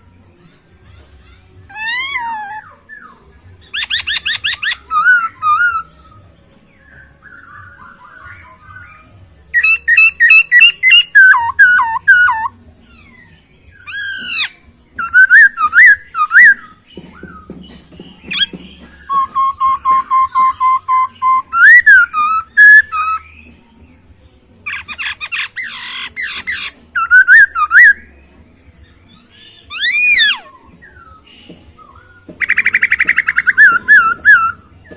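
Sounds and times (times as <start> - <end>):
bird singing whistled phrases: 1.7 - 6.2, 6.8 - 12.5, 13.8 - 17.5, 18.3 - 23.5, 24.7 - 28.1, 29.5 - 34.9.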